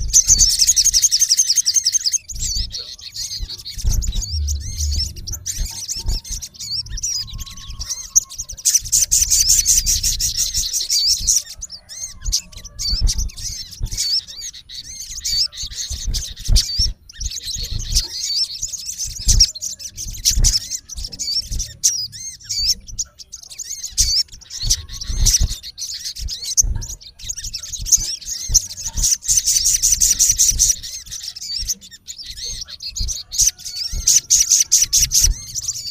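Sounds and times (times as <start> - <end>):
fast buzzy bird trill: 0.0 - 35.9
high-pitched bird chirps: 0.0 - 35.9
low bumps: 3.8 - 7.0.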